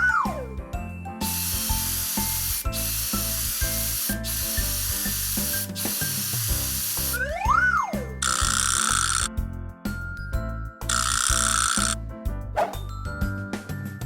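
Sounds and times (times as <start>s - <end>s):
cheerful children's music: 0.0s - 14.0s
hissing spray: 1.2s - 7.3s.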